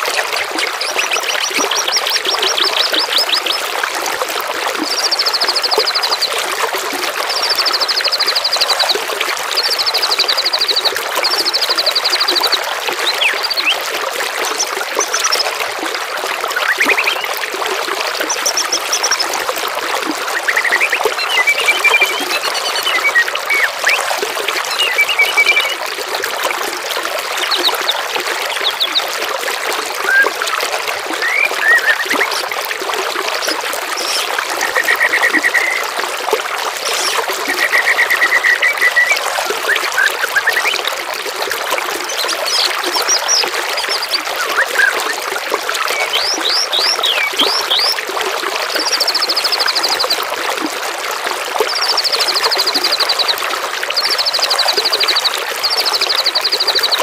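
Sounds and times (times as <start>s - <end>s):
songbirds singing: 0.0s - 3.7s, 7.3s - 15.6s, 16.5s - 17.4s, 18.1s - 19.4s, 20.3s - 24.1s, 24.7s - 25.8s, 27.4s - 29.1s, 31.1s - 32.6s, 33.2s - 35.8s, 36.8s - 40.9s, 42.0s - 45.2s, 45.9s - 48.0s
trickle of running water: 0.0s - 57.0s.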